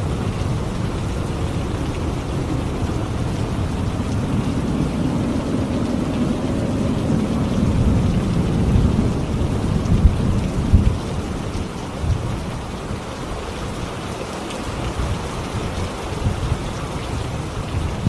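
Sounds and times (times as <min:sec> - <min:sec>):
heavy rain: 0:00.0 - 0:18.0
thunder rumbling: 0:00.0 - 0:18.0.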